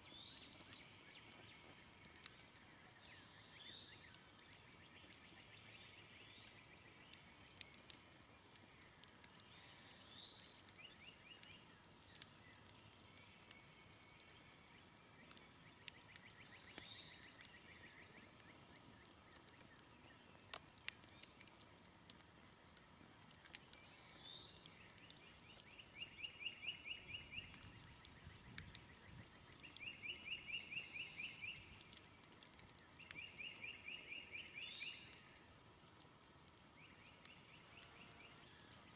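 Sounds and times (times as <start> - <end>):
campfire crackling and popping: 0.0 - 38.9
bird chirps: 23.8 - 32.0, 32.8 - 35.4.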